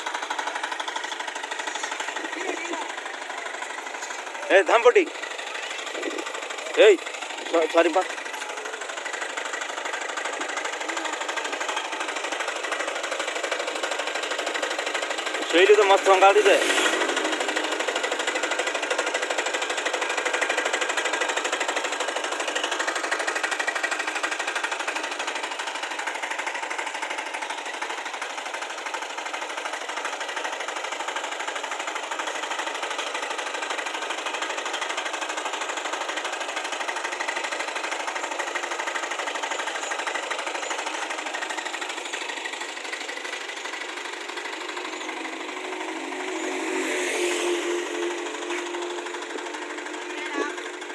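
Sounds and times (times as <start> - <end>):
power weeder diesel engine: 0.0 - 50.9.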